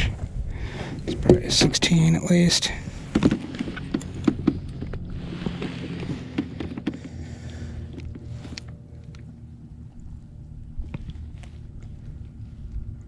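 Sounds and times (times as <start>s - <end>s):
steady low hum: 0.0s - 13.0s
knocks and clicks of handling gear: 3.0s - 9.4s.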